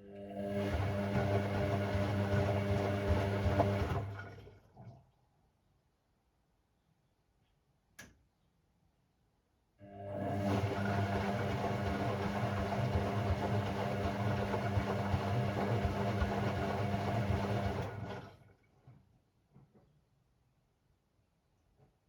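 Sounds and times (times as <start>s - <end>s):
washing machine humming: 0.1s - 4.8s, 9.9s - 18.5s.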